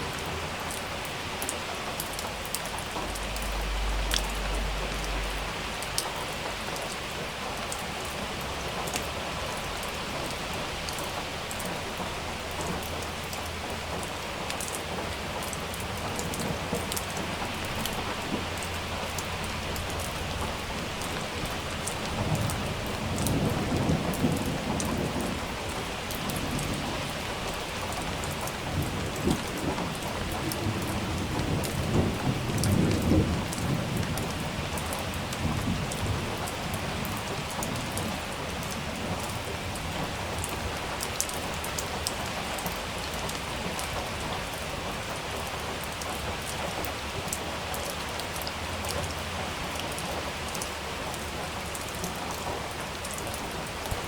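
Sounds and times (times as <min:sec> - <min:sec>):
rain with sharp drop hits: 0:00.0 - 0:54.0
low thunder rumbling: 0:16.0 - 0:40.7.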